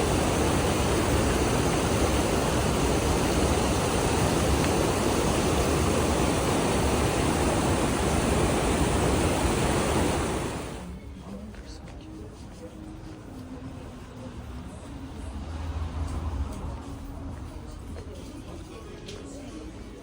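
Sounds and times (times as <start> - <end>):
loud rushing noise: 0.0 - 10.9.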